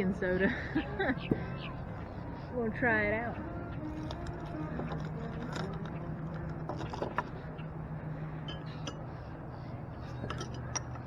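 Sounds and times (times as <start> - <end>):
steady low hum: 0.0 - 11.0
glass bottle clinking: 8.4 - 9.0, 10.2 - 11.0.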